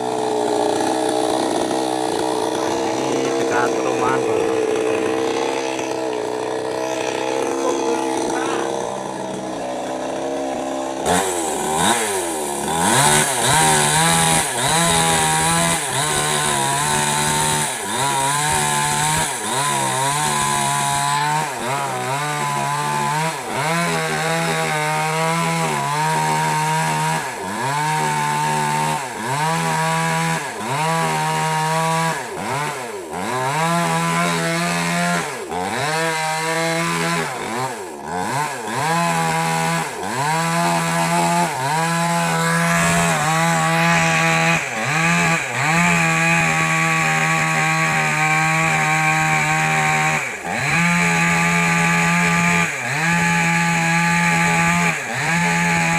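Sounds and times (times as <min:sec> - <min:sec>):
chainsaw cutting wood: 0:00.0 - 0:55.9.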